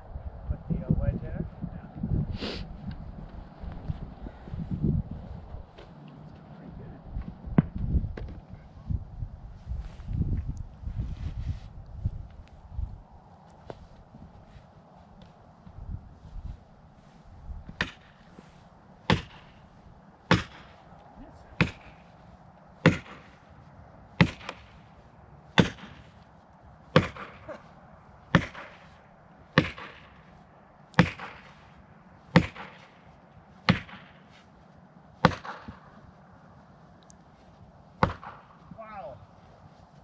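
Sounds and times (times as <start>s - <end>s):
hammer striking wedge: 21.6s - 22.0s.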